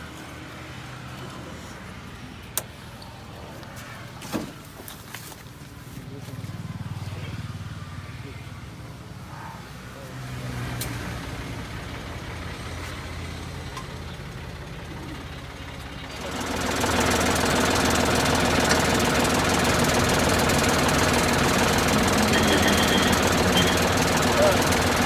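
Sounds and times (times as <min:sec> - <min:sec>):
diesel tractor engine knocking: 0:11.5 - 0:25.0.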